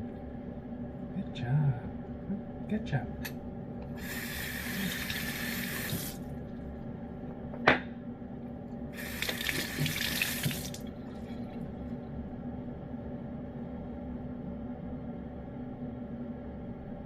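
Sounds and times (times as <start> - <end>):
tap water running: 4.0 - 6.3, 9.0 - 11.0.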